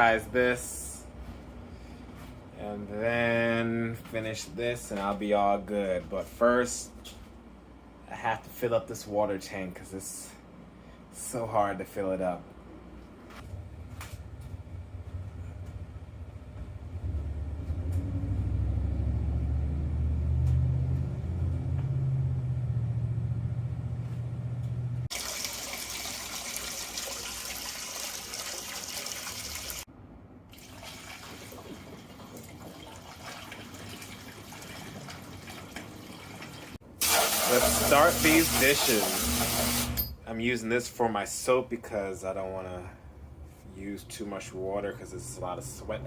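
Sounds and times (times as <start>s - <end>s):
water running into a tank: 25.1s - 29.9s, 30.5s - 40.0s.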